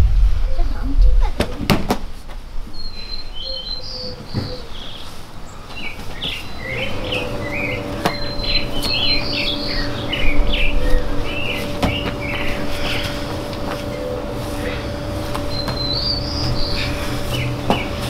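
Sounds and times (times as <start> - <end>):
faint steady hum: 0.0 - 18.0
thumps on foam mats: 1.4 - 2.4, 17.7 - 18.0
songbird chirping: 2.7 - 13.2, 15.4 - 18.0.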